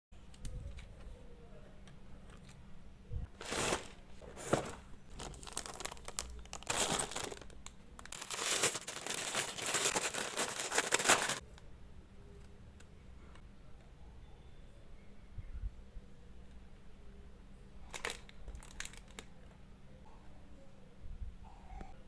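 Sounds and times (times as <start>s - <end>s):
packaging crinkling and tearing: 3.4s - 11.4s, 18.0s - 19.3s.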